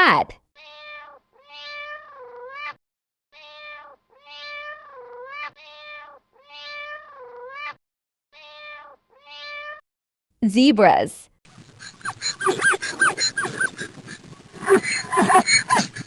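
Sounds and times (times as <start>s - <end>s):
cat meowing: 0.6s - 2.8s, 3.4s - 7.8s, 8.4s - 9.8s.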